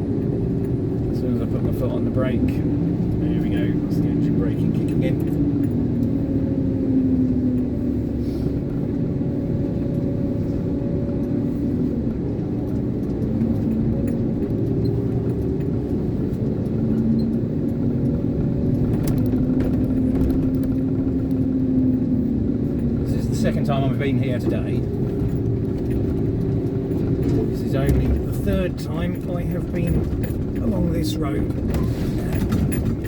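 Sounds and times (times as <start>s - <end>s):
diesel lorry engine running: 0.0s - 33.0s.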